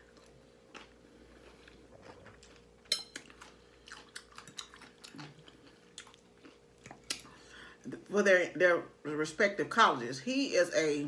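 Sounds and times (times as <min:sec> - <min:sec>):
person chewing food: 0:00.0 - 0:07.6
faint steady hum: 0:00.0 - 0:11.0.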